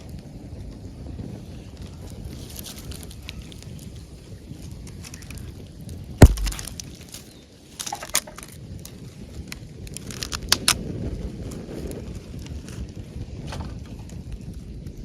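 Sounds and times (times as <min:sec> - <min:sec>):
campfire crackling: 0:00.0 - 0:13.3
low rumble of fire: 0:00.0 - 0:15.0
sharp pops: 0:06.2 - 0:07.0.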